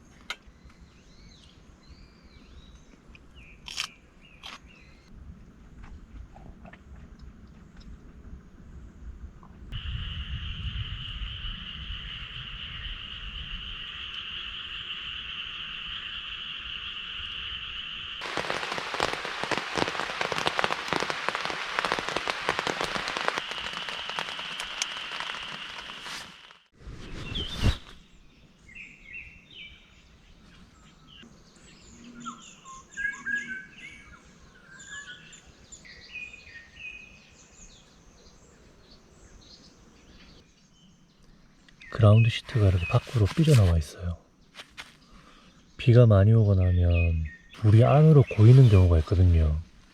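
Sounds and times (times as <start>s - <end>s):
dense crackling noise: 9.4s - 28.0s, 42.0s - 44.9s, 47.6s - 49.9s
birds chirping: 9.6s - 49.7s.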